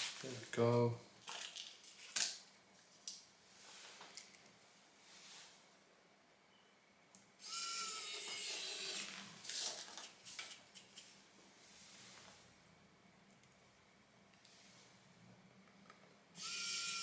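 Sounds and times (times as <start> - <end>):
electric screwdriver whirring: 7.4 - 9.2, 16.4 - 17.0.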